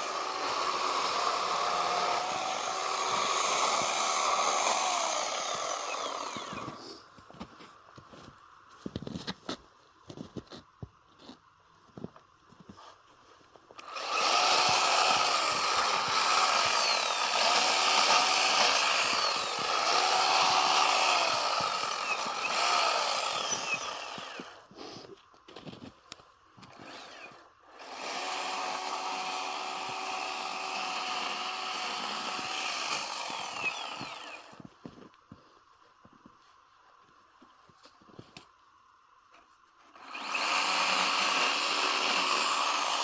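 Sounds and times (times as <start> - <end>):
chainsaw cutting snow: 0.0 - 7.5, 13.8 - 25.9, 26.6 - 35.1, 39.9 - 43.0.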